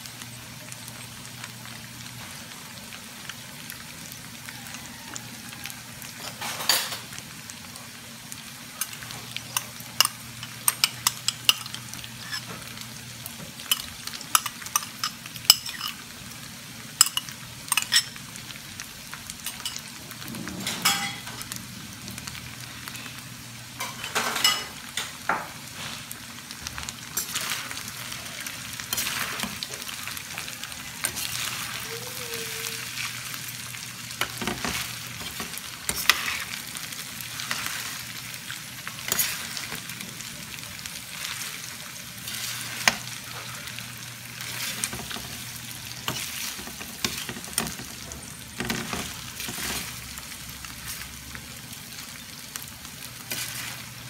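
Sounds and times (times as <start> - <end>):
food sizzling on metal tray: 0.0 - 54.0
utensils clinking and scraping: 8.8 - 12.5, 13.6 - 16.0, 17.0 - 18.2, 34.2 - 36.6, 38.9 - 40.0, 44.4 - 50.0.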